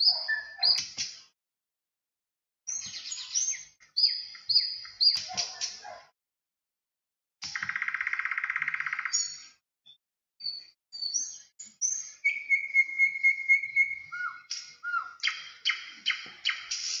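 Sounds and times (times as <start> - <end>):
birds chirping and whistling: 0.0 - 1.3, 2.7 - 6.0, 7.4 - 17.0.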